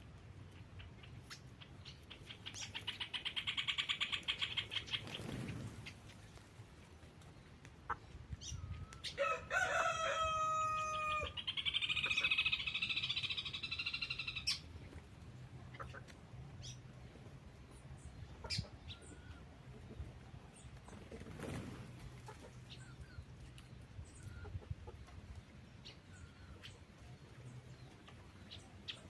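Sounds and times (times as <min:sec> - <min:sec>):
birds chirping and clicking: 0:00.2 - 0:09.2, 0:11.3 - 0:29.0
rooster crowing: 0:09.2 - 0:11.4.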